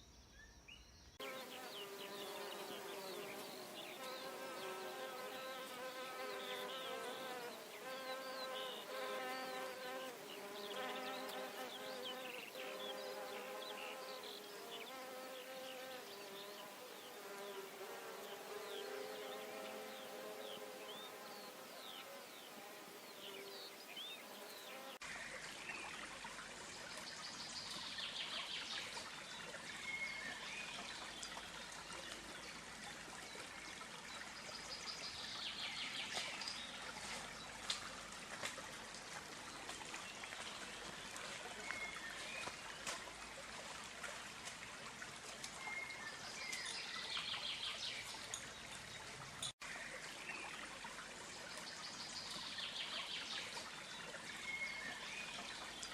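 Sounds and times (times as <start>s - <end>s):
birds singing: 0.0s - 17.5s
insect buzzing: 1.2s - 25.0s
stream trickling: 1.2s - 55.9s.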